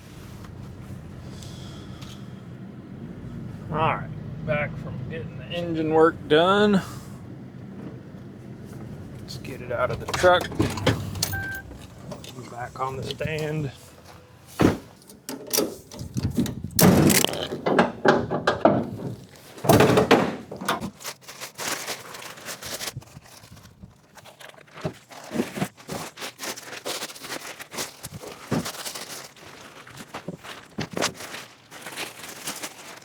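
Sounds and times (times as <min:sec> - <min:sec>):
metal tools clanking and scraping: 0:06.8 - 0:20.8.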